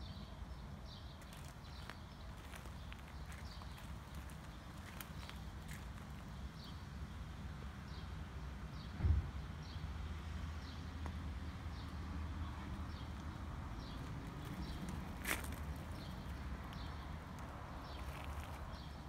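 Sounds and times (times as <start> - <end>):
thump: 9.0 - 9.4.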